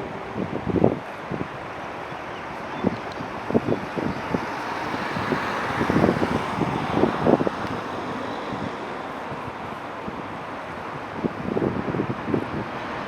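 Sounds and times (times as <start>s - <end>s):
jet engines rushing: 0.0s - 13.0s
wind buffeting microphone: 0.0s - 13.0s.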